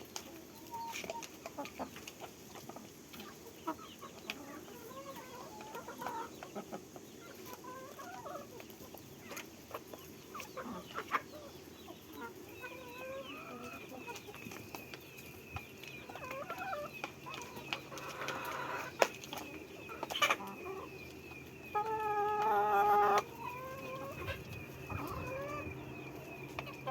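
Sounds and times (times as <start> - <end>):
chickens clucking softly: 0.0 - 26.9
chicken drawn-out call: 16.0 - 19.1, 21.7 - 26.9.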